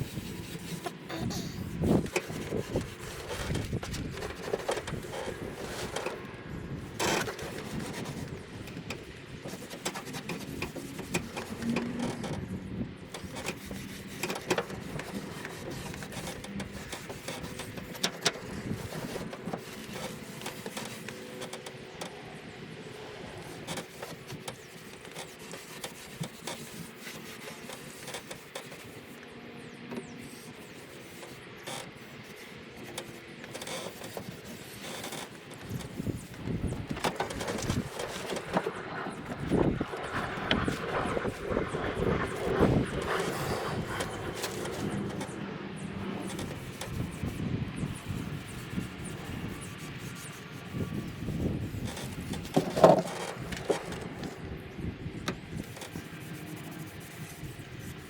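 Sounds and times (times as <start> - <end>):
cloth rag rubbing wood: 0.0 - 6.2, 13.2 - 21.6, 46.2 - 54.4, 55.4 - 58.0.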